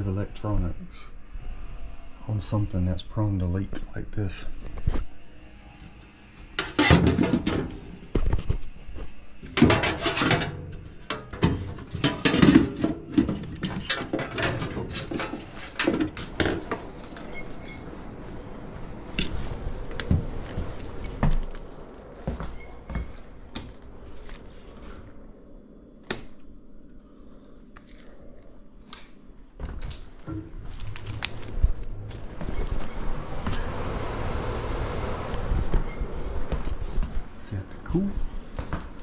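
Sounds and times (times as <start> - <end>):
metal tools clinking and rattling: 6.6 - 8.0, 9.4 - 17.8, 30.3 - 32.0.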